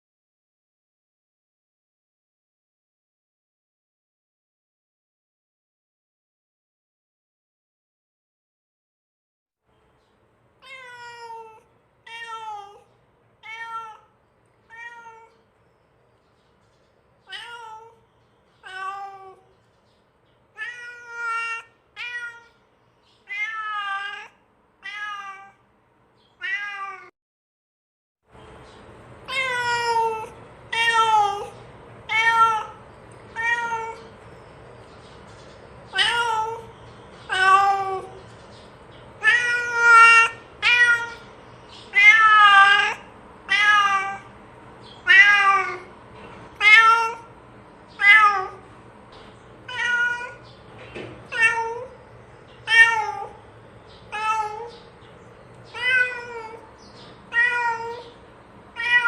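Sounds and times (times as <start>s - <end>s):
cat meowing: 10.6s - 14.1s, 14.7s - 15.4s, 17.3s - 18.0s, 18.6s - 19.5s, 20.6s - 22.6s, 23.2s - 25.6s, 26.4s - 27.1s, 29.3s - 34.1s, 35.9s - 36.7s, 37.3s - 38.2s, 39.2s - 41.3s, 41.9s - 44.3s, 45.0s - 45.9s, 46.5s - 47.4s, 48.0s - 48.7s, 49.6s - 50.5s, 51.3s - 52.0s, 52.6s - 53.4s, 54.1s - 54.9s, 55.7s - 56.7s, 57.3s - 59.0s.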